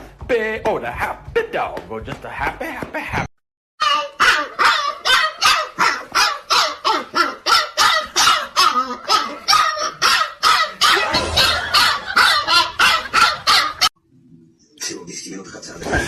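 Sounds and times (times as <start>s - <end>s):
dog barking: 4.2s - 13.9s.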